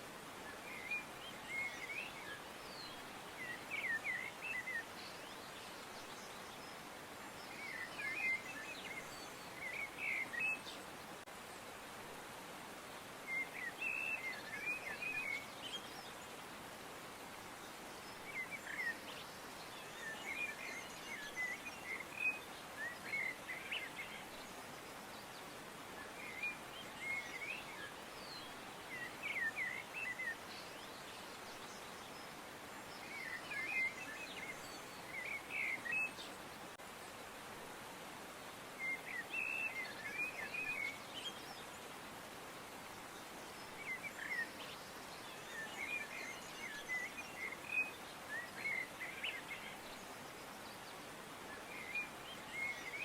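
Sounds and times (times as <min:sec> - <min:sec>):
steady background hiss: 0:00.0 - 0:53.0
small birds chirping: 0:17.4 - 0:37.2, 0:38.2 - 0:53.0.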